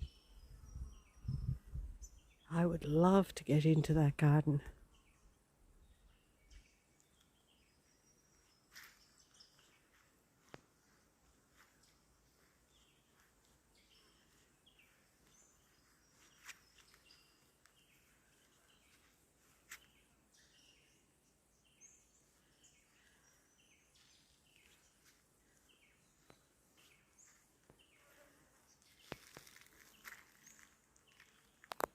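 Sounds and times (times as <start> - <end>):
faint bird chirps: 0.0 - 2.5, 10.8 - 31.8.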